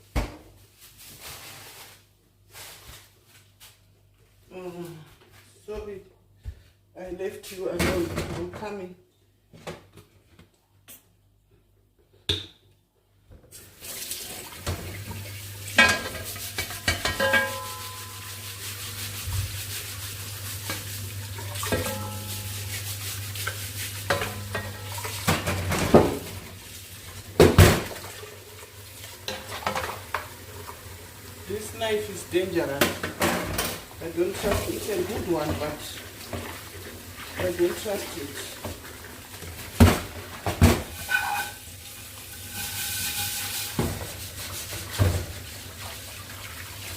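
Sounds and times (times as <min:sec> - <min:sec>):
dishes and cutlery clinking: 0:15.8 - 0:18.4, 0:21.6 - 0:22.8, 0:23.4 - 0:26.3.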